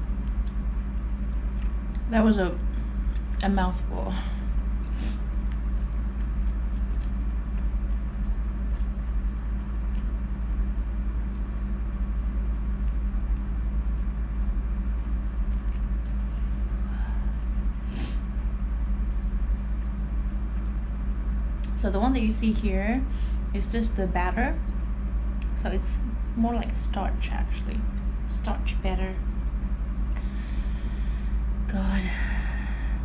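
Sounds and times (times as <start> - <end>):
low room hum: 0.0 - 33.0
chewing: 4.5 - 10.5.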